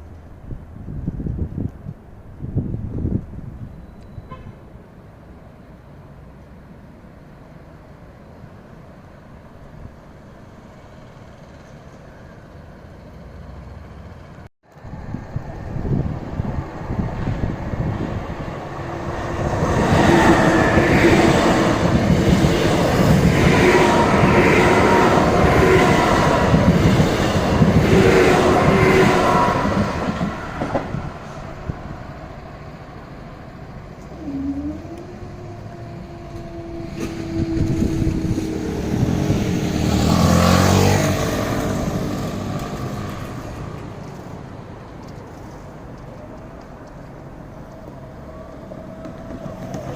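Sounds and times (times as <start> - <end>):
low vehicle rumble: 9.8 - 49.9
deeper rumble: 13.3 - 44.6
train wheels rushing on rail: 14.3 - 49.9.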